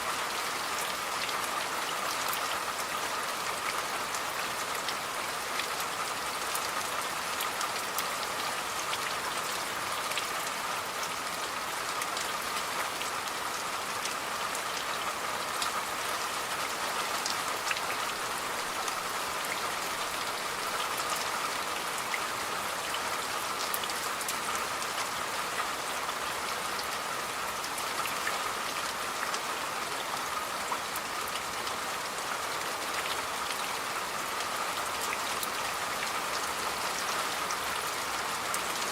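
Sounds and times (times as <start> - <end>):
steady rain falling: 0.0 - 38.9
raindrops ticking on surface: 0.1 - 38.9.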